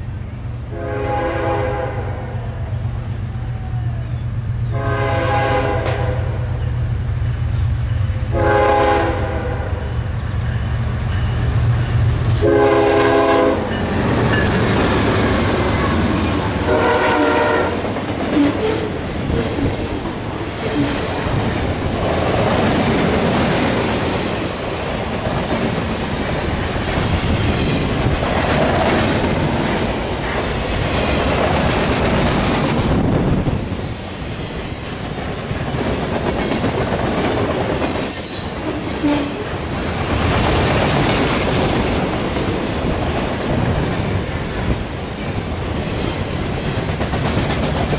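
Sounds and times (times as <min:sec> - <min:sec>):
train horn blast: 0:00.7 - 0:02.7, 0:04.6 - 0:06.6, 0:08.3 - 0:10.0, 0:12.3 - 0:13.8, 0:15.8 - 0:18.9, 0:38.1 - 0:39.5
train wheels clattering on rails: 0:10.3 - 0:47.9.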